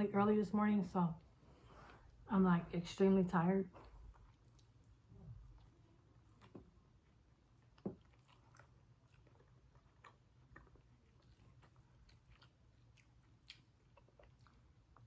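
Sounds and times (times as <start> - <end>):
low steady hum: 0.0 - 15.0
chewing and wet mouth clicks: 3.8 - 15.0.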